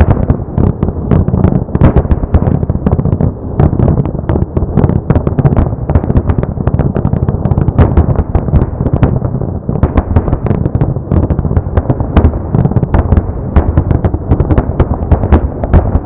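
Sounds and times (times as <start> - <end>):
continuous low rumble: 0.0 - 16.0
fireworks bangs and crackles: 0.0 - 16.0.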